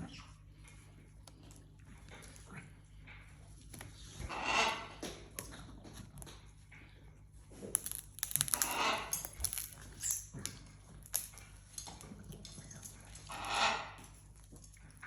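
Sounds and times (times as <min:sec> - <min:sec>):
parrot playing with feather: 0:07.7 - 0:11.5.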